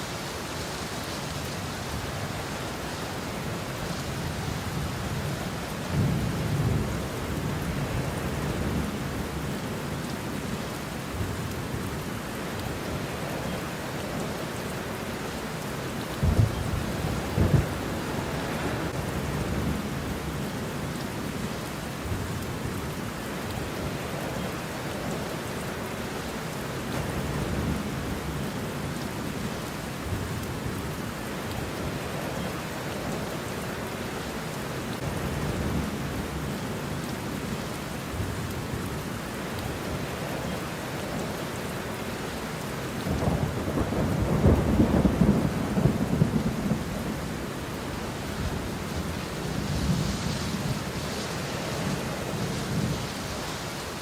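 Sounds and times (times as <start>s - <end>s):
steady rain: 0.0s - 54.0s
low thunder rumbles: 16.1s - 20.4s, 43.1s - 53.3s.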